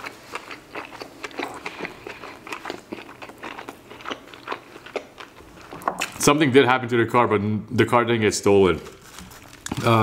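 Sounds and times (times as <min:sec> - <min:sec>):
chewing with wet mouth clicks: 0:00.0 - 0:06.1.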